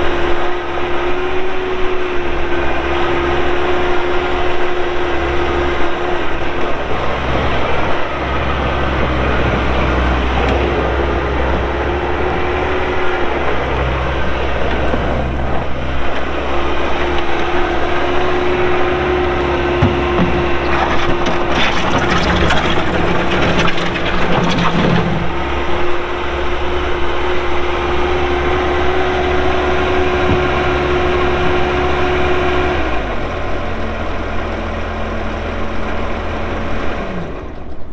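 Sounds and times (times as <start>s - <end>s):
diesel engine whining: 0.0s - 37.9s
engine clatter: 0.0s - 37.9s.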